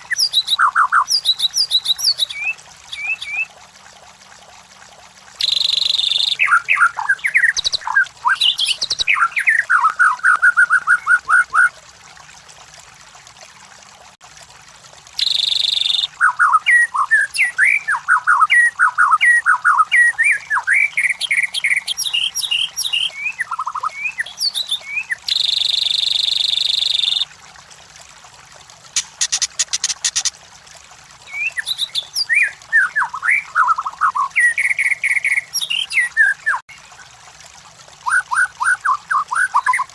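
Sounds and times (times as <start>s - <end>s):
bird whistling song: 0.0s - 3.5s, 5.4s - 11.7s, 15.2s - 27.3s, 29.0s - 30.3s, 31.2s - 36.6s, 38.0s - 39.9s.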